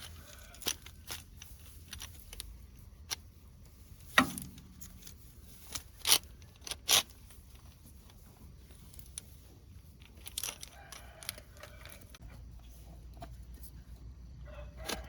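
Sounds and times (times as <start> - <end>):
sharp clicks and knocks: 4.1 - 5.2.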